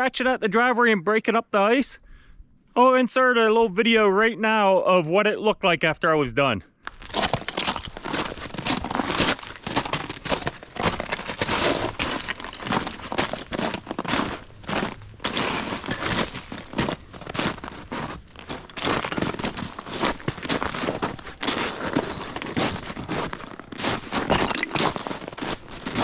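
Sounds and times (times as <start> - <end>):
footsteps crunching on ice and snow: 6.9 - 26.0.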